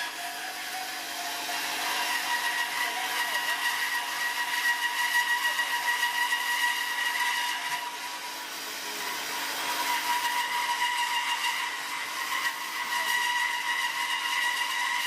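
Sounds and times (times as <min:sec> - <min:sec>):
high-pitched machine motor whine: 0:00.0 - 0:15.0.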